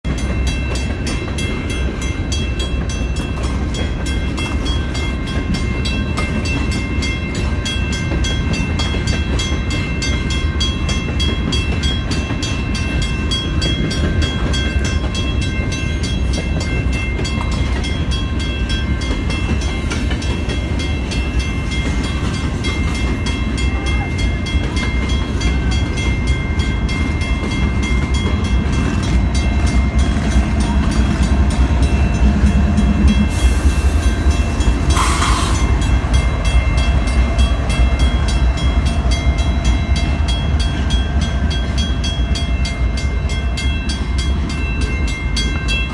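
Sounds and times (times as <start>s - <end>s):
train rumbling by: 0.1s - 45.9s.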